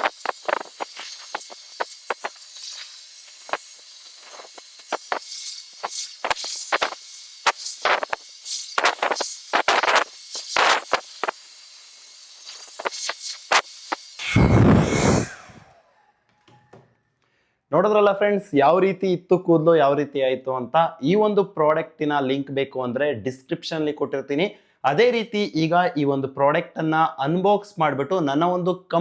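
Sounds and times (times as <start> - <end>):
air buffeting microphone: 14.2 - 15.7
hair dryer blowing: 14.2 - 15.8.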